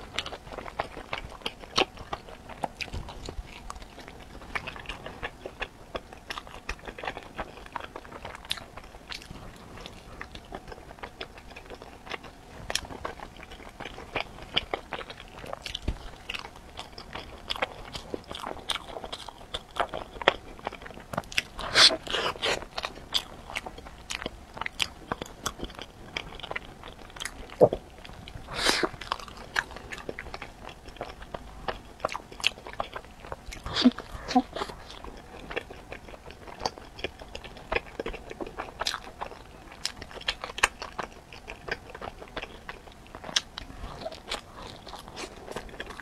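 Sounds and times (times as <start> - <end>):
chewing and biting bread: 0.0 - 46.0.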